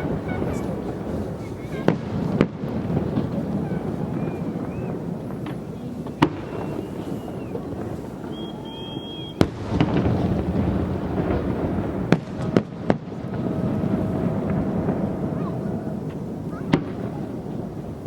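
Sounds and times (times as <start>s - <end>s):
fireworks bangs: 0.0s - 18.0s.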